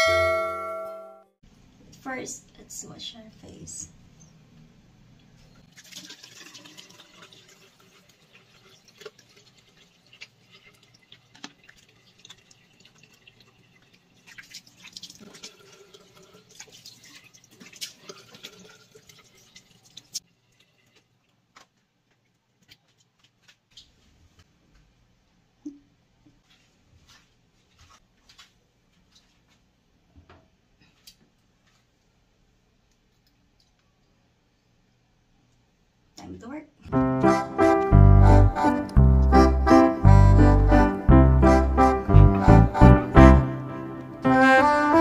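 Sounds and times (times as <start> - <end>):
water splashes from face washing: 5.7 - 20.2
tap water running into a sink: 5.7 - 21.1.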